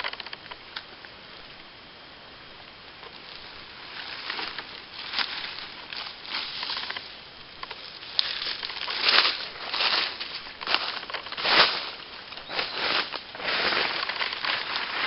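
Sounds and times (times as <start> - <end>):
footsteps crunching dry leaves: 3.1 - 15.0.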